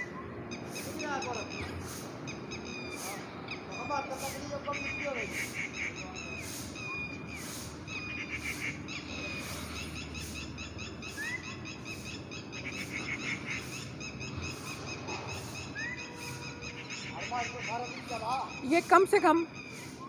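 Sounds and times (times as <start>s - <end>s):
birds chirping: 0.0s - 20.0s
rising whistled bird call: 5.9s - 18.7s.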